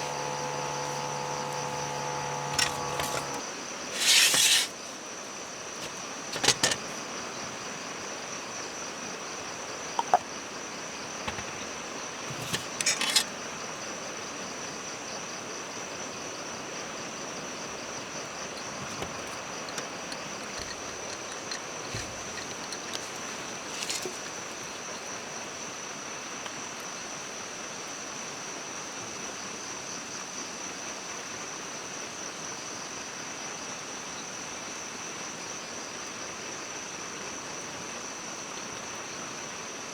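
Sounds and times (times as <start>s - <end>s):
insects chirring: 0.0s - 5.0s, 17.2s - 25.2s.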